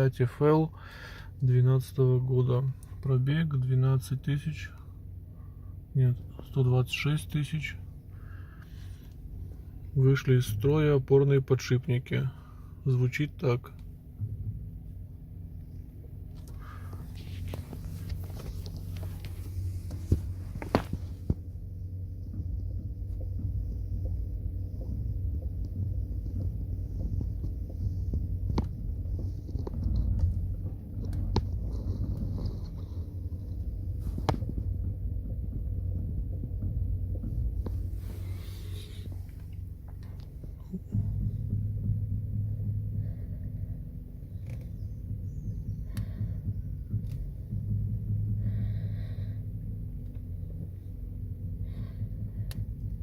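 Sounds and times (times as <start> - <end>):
low steady rumble: 0.0 - 53.0
steady low hum: 0.0 - 53.0
suspension knocks while steering: 16.6 - 53.0.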